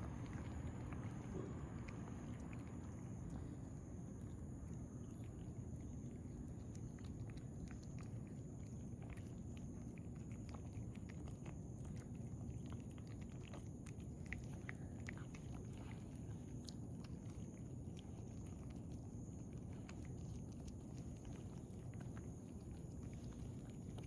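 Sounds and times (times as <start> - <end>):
cats chewing food: 0.0 - 24.0
low background noise: 0.0 - 24.0.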